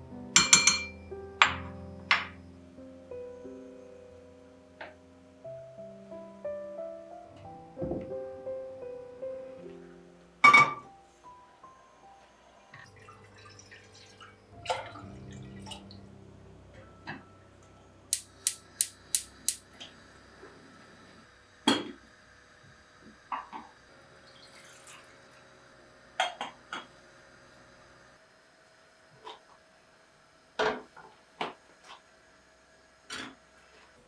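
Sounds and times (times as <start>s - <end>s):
sharp clicks: 18.2s - 19.6s.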